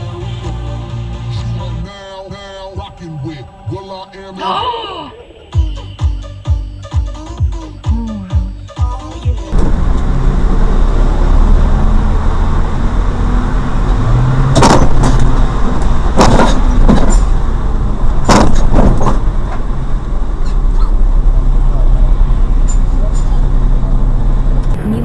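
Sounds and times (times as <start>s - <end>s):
road noise: 0.0s - 6.5s, 8.1s - 25.0s
vehicle engine rumble: 0.0s - 6.5s, 7.2s - 25.0s
sharp loud knocks: 14.5s - 15.3s, 16.1s - 17.3s, 18.2s - 19.3s.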